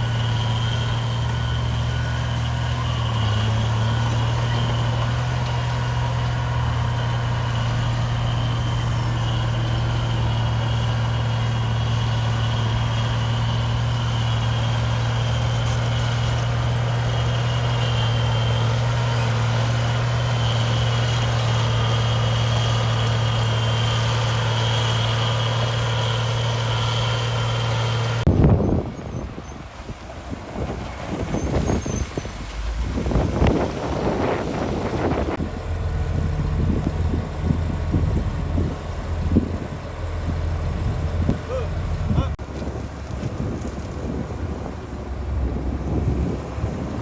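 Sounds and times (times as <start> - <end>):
heavy diesel engine running: 0.0 - 47.0
loud low thumps: 32.3 - 39.6.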